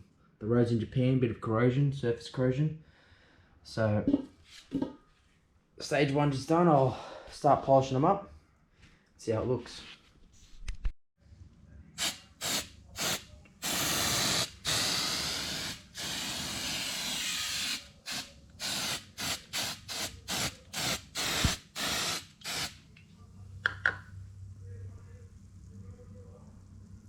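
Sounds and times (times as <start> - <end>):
aerosol can spraying: 12.0 - 22.8.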